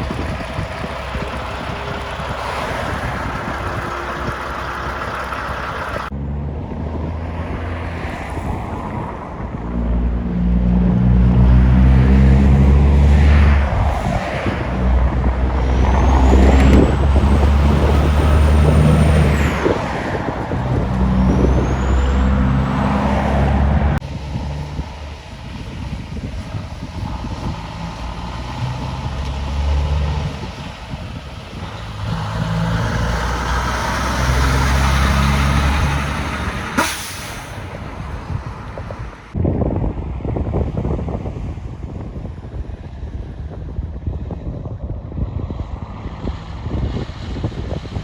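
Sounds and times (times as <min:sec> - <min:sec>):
diesel trucks passing: 0:00.0 - 0:48.0
rising high whines: 0:09.6 - 0:39.4
air brake hiss: 0:36.8 - 0:38.1.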